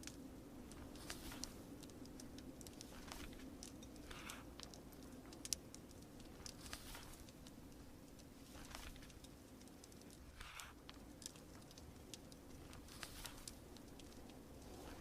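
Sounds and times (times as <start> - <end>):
fire crackling and popping: 0.0 - 15.0
soft rain hiss: 0.0 - 15.0
paper pages turning: 6.4 - 7.3, 8.5 - 9.2.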